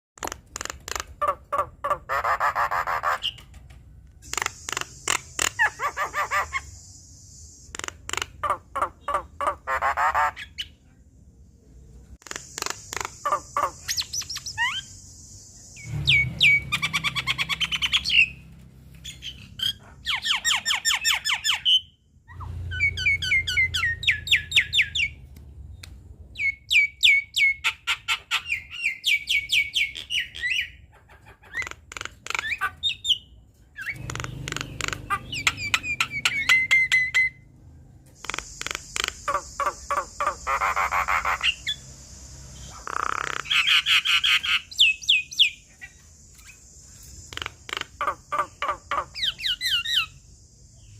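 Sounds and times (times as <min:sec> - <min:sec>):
myna singing with squawks and whistles: 0:04.2 - 0:10.8, 0:12.2 - 0:18.4, 0:31.4 - 0:37.5, 0:38.2 - 0:41.9.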